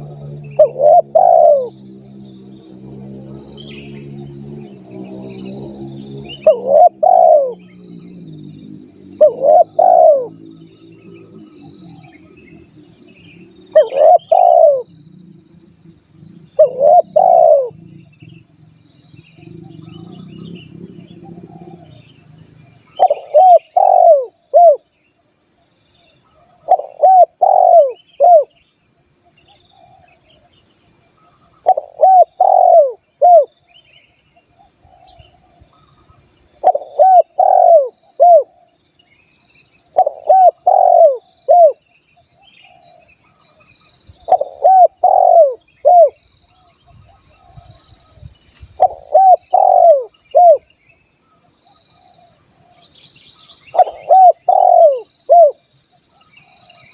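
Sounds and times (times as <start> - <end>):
dove cooing: 0.0 - 2.0, 5.4 - 8.3, 9.1 - 12.5, 13.7 - 14.9, 16.5 - 17.8, 19.4 - 22.0, 22.9 - 24.9, 26.4 - 28.5, 31.6 - 33.5, 36.6 - 38.6, 39.9 - 41.8, 42.6 - 43.1, 44.3 - 46.2, 48.8 - 50.7, 53.7 - 55.6
high insect-like buzz: 0.0 - 25.6.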